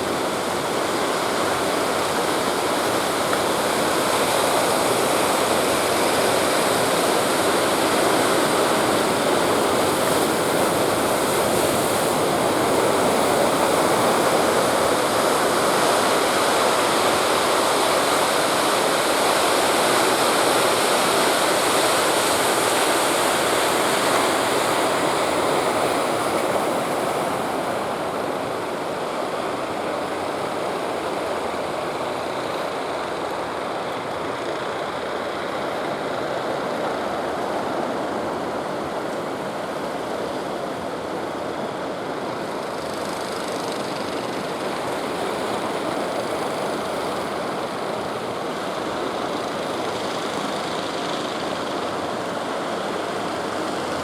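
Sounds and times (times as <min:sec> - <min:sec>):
rushing water: 0:00.0 - 0:54.0
wind: 0:00.0 - 0:54.0.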